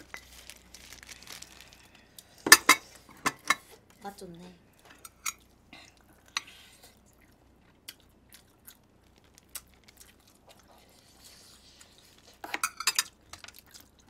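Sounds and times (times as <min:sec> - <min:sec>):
person biting and chewing: 0:07.7 - 0:10.7.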